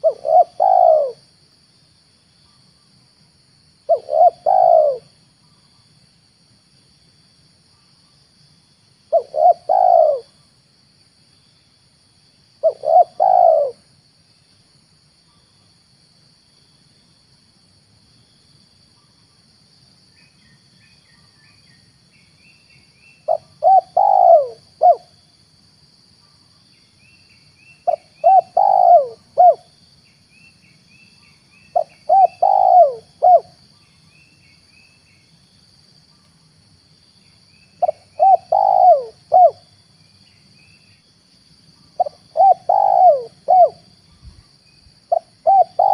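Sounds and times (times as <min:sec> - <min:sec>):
dove cooing: 0:00.0 - 0:01.2, 0:03.9 - 0:05.2, 0:09.1 - 0:10.4, 0:12.6 - 0:13.9, 0:23.3 - 0:25.1, 0:27.8 - 0:29.7, 0:31.7 - 0:33.6, 0:37.8 - 0:39.6, 0:42.0 - 0:44.4, 0:45.1 - 0:45.9
steady faint hiss: 0:00.0 - 0:45.9
faint high chirping: 0:26.2 - 0:35.4, 0:37.2 - 0:41.0.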